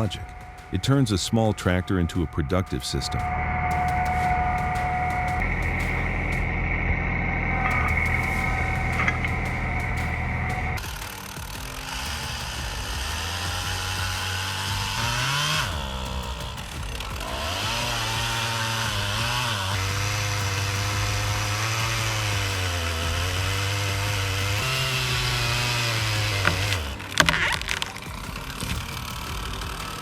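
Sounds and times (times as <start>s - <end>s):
chainsaw cutting wood: 7.6s - 30.0s.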